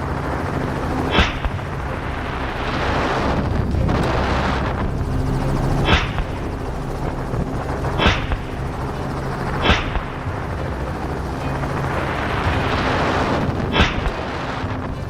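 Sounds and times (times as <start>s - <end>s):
helicopter drone: 0.0s - 15.0s
gunshots: 1.1s - 1.8s, 5.8s - 6.5s, 8.0s - 8.6s, 9.6s - 10.4s, 13.7s - 14.5s.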